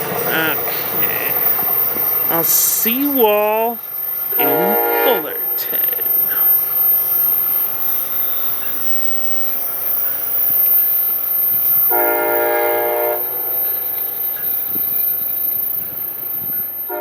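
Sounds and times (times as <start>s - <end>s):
freight train rumbling past: 0.0s - 17.0s
train horn blast: 4.4s - 5.4s, 11.9s - 13.4s.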